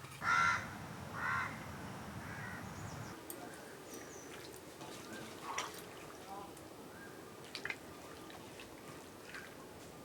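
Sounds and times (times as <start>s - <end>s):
crow cawing: 0.2s - 2.8s.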